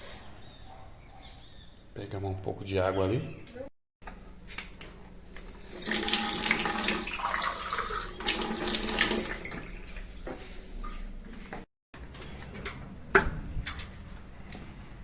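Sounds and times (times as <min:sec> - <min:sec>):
tap water running into container: 0:04.6 - 0:10.2.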